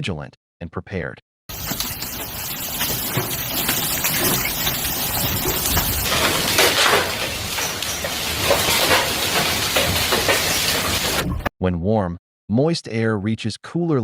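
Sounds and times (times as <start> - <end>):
hail impacts: 1.5 - 11.3
heavy rain rushing: 1.5 - 11.5.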